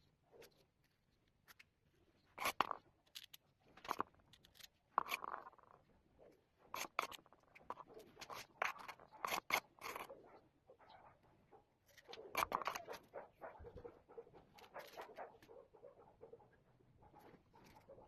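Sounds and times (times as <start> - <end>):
scraping and snipping strokes: 2.4 - 5.6, 6.7 - 10.2, 11.8 - 13.1.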